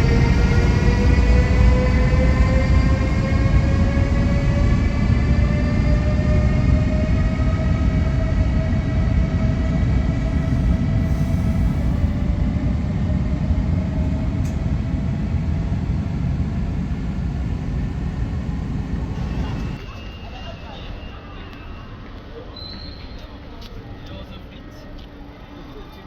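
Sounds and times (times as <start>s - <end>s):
train whine rising in pitch: 0.0s - 22.2s
electric train rumbling: 0.0s - 22.6s.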